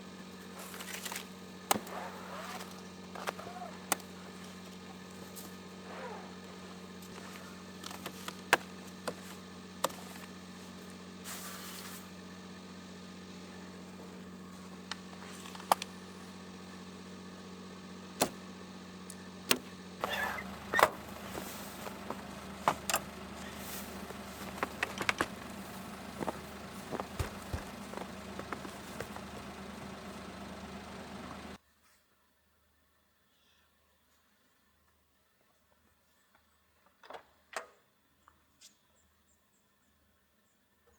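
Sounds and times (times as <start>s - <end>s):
mechanical hum: 0.0s - 31.6s.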